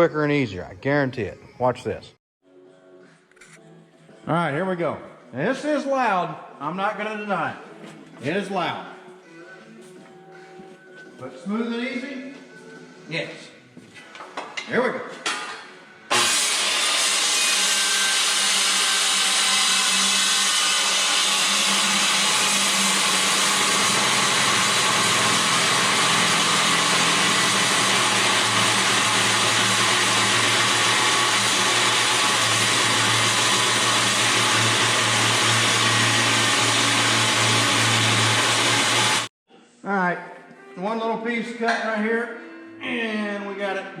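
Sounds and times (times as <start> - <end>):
circular saw cutting steel: 16.1 - 39.3.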